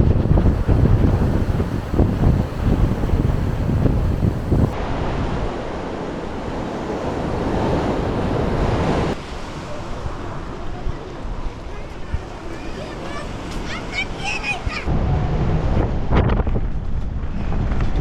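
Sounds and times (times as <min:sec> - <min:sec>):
wind rumbling on microphone: 0:00.0 - 0:09.2, 0:14.9 - 0:18.0
sea waves washing on shore: 0:00.0 - 0:10.6.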